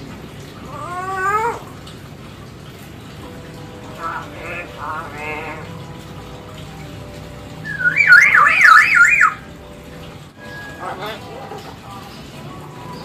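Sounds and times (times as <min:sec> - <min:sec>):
myna warbling whistle: 0:07.6 - 0:09.4.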